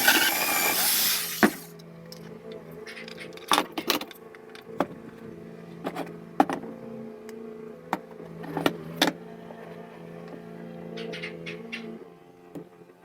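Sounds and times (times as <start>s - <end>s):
small electric motor humming: 0.0s - 1.8s.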